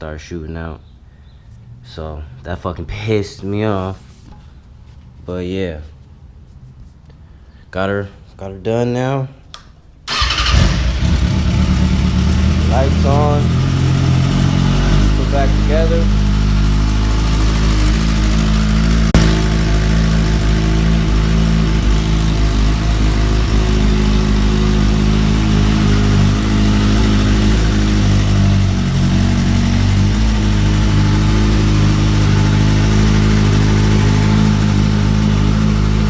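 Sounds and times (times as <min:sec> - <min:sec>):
motorcycle engine idling: 0:10.1 - 0:36.0.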